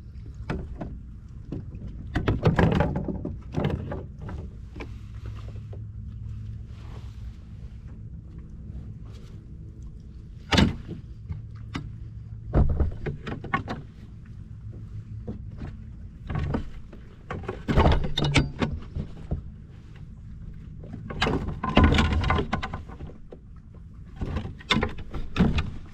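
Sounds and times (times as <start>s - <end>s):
low steady hum: 0.0s - 25.9s
gear knocking against kayak hull: 0.4s - 5.6s, 10.4s - 19.7s, 20.8s - 25.9s.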